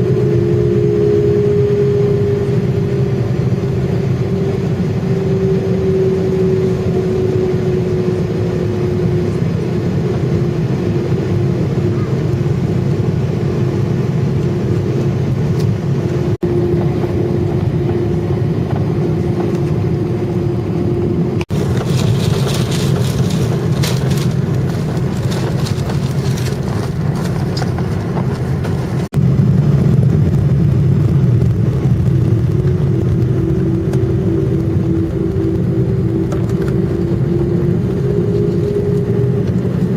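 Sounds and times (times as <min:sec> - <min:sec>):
jet engines in passenger cabin: 0:00.0 - 0:39.9.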